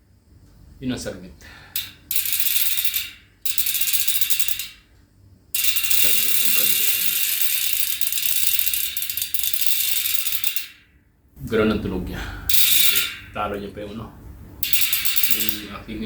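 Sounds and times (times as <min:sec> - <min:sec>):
bicycle hub ratchet clicking: 0:01.5 - 0:11.0, 0:12.5 - 0:13.4, 0:14.6 - 0:16.0.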